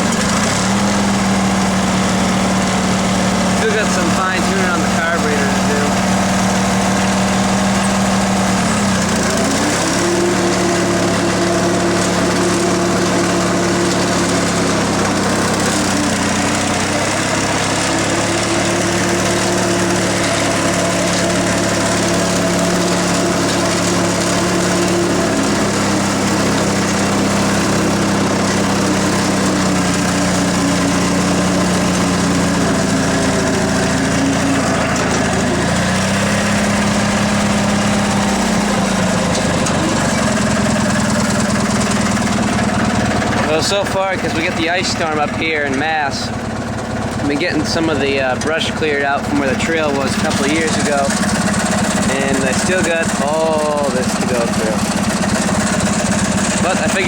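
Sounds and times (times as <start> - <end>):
lawn tractor engine running: 0.0 - 57.0.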